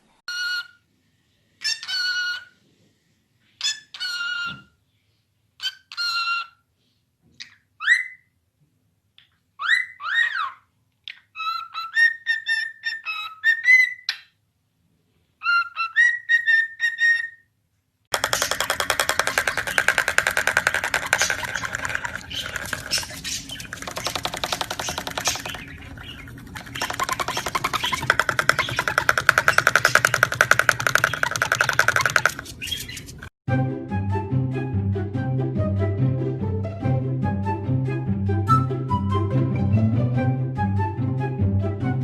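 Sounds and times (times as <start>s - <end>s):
parrot whistling: 18.2s - 33.2s.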